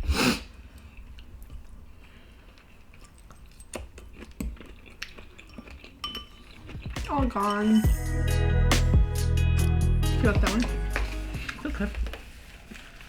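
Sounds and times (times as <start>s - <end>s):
quiet chewing: 0.5s - 7.7s, 10.6s - 13.0s.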